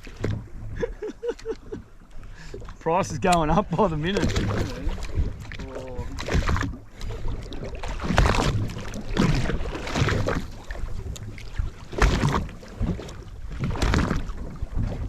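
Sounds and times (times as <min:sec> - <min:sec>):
water surging against hull: 0:00.0 - 0:15.0.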